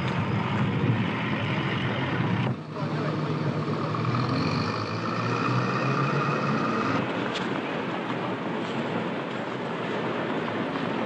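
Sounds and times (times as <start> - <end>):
train rumble: 0.0 - 4.6.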